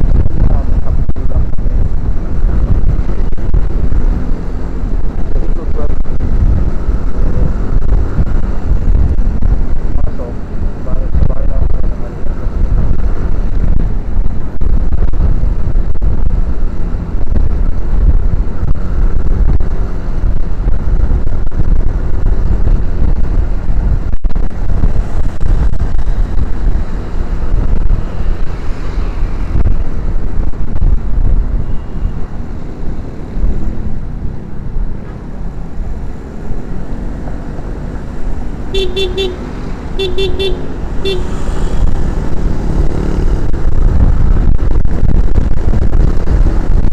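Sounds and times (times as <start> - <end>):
motorcycle engine: 0.0 - 46.9
road noise: 0.0 - 46.9
wind buffeting on camera: 0.0 - 46.9
vehicle horn beeps: 38.8 - 39.4, 40.0 - 41.4.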